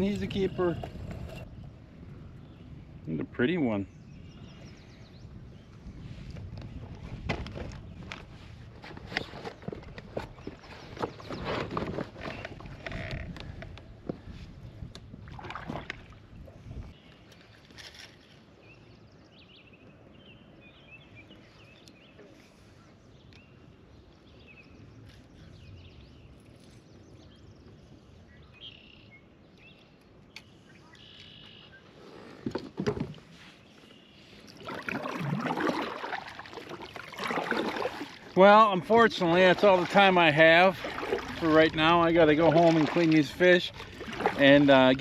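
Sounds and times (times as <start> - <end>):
kayak water sloshing and handling: 6.2 - 18.5, 31.2 - 45.0.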